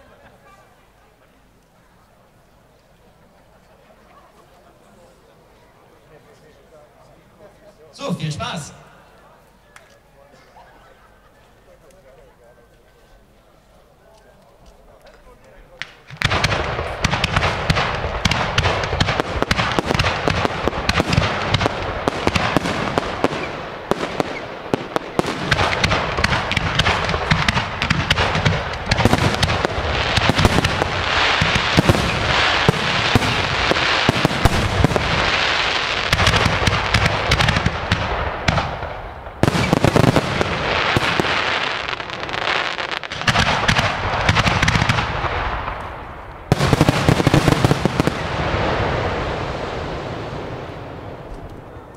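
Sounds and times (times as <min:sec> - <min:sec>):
fireworks bangs and crackle: 0:15.7 - 0:51.9.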